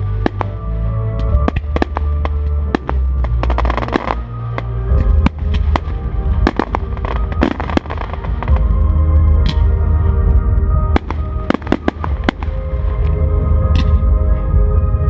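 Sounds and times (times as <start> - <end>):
fireworks bursting: 0.0 - 8.8, 10.9 - 13.1
loud music: 0.0 - 15.0
crackling firework bangs: 1.3 - 8.7, 11.0 - 12.7.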